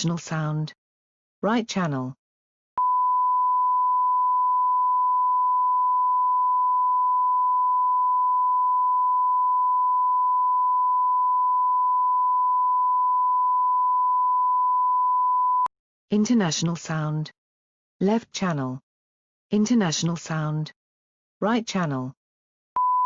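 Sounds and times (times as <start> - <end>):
sine wave test tone: 2.8 - 15.7, 22.8 - 23.0.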